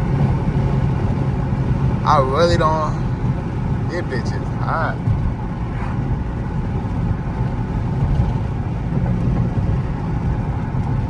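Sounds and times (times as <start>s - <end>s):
car engine droning: 0.0s - 11.0s
road noise: 0.0s - 11.0s.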